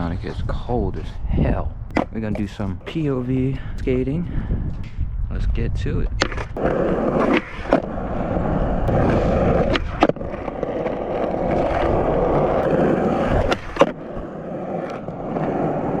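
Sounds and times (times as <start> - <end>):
skateboard clacks: 1.9 - 2.6, 8.9 - 16.0
skateboard wheels rolling on pavement: 1.9 - 3.2, 6.0 - 16.0.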